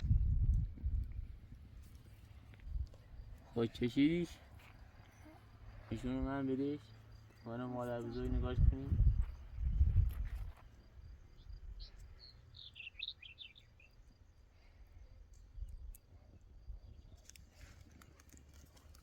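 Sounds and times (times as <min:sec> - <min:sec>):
faint bird chirps: 0:11.0 - 0:15.7.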